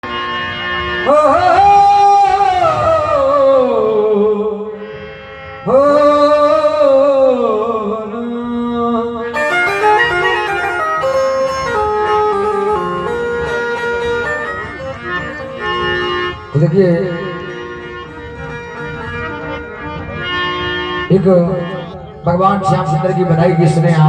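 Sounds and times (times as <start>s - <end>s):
devotional singing: 1.0s - 4.8s
instrumental melody: 9.0s - 24.0s.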